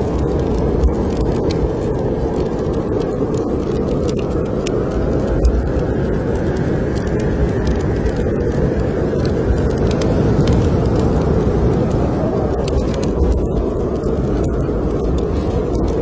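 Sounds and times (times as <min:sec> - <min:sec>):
blizzard wind: 0:00.0 - 0:16.0
wood fire crackling: 0:00.0 - 0:16.0.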